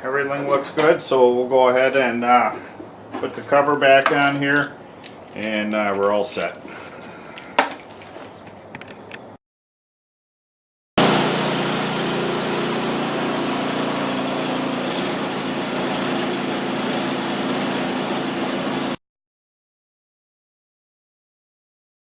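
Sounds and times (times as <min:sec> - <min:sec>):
snow blower engine running: 0:11.0 - 0:19.0.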